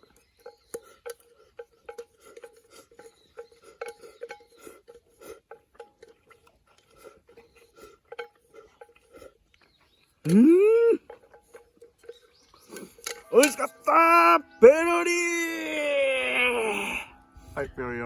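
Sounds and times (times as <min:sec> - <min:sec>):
utensils tapping on a bowl: 0:00.0 - 0:09.2, 0:11.0 - 0:13.9.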